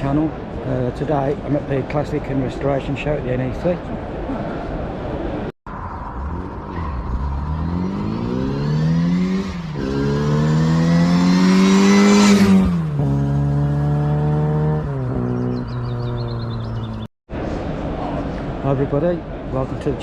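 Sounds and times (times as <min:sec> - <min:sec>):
car engine accelerating: 0:05.8 - 0:17.1.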